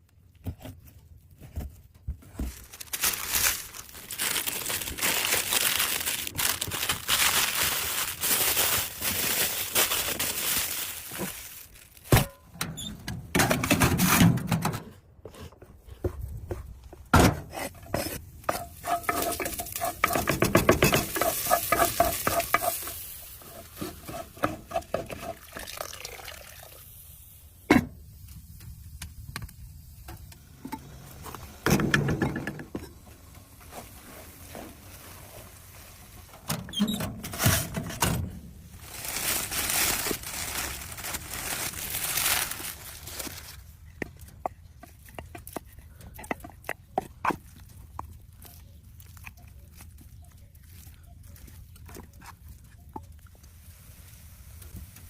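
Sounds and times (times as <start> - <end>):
utensil stirring and scraping: 17.5 - 25.7
food sizzling: 18.5 - 27.4.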